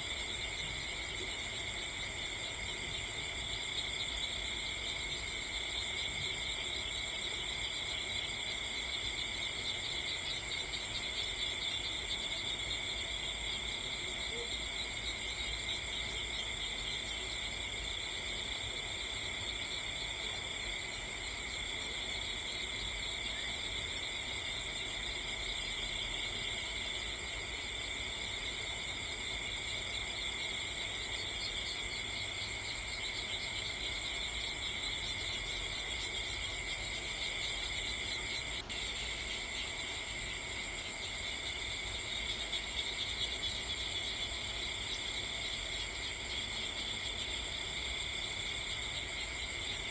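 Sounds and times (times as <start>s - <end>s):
crickets chirping: 0.0s - 49.9s.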